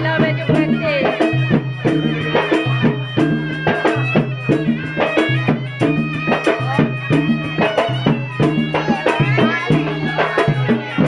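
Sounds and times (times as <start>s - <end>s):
drums beating quick rhythm: 0.0s - 11.0s
reedy wind instrument melody: 0.0s - 11.0s.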